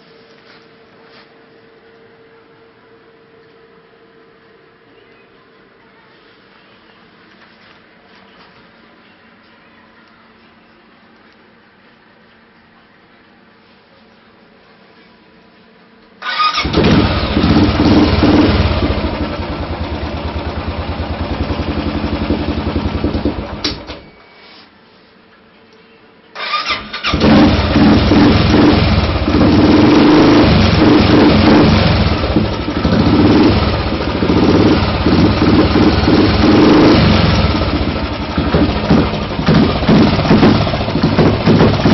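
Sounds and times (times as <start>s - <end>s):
motorcycle engine thumping: 16.6s - 24.0s, 27.2s - 41.9s.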